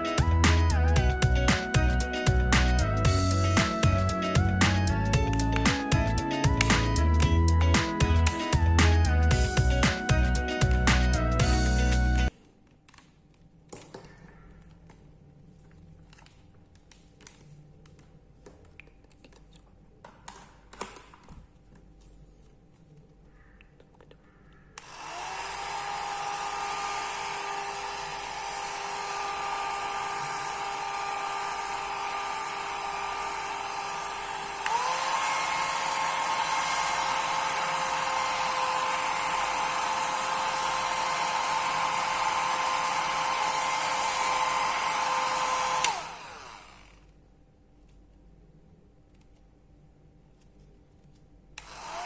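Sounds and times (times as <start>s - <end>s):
hair dryer blowing with motor whine: 24.8s - 47.0s, 51.6s - 52.0s.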